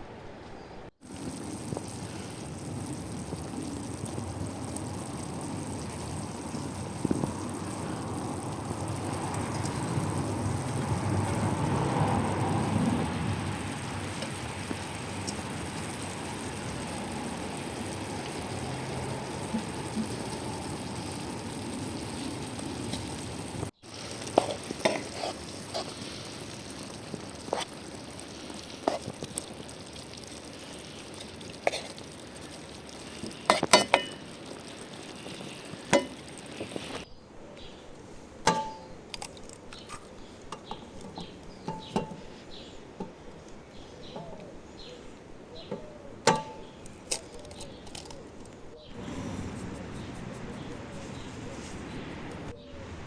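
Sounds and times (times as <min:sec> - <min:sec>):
sizzling hiss: 0:01.0 - 0:53.0
utensils clinking on cookware: 0:33.5 - 0:34.3, 0:35.9 - 0:36.2, 0:38.5 - 0:43.2, 0:44.1 - 0:44.6, 0:45.7 - 0:50.2.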